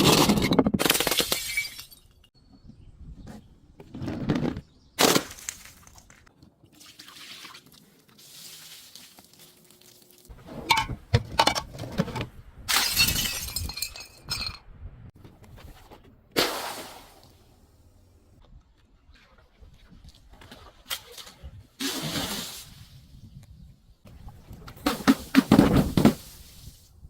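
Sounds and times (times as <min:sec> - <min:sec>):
glass bottles shattering: 0:00.1 - 0:02.3, 0:12.7 - 0:14.6.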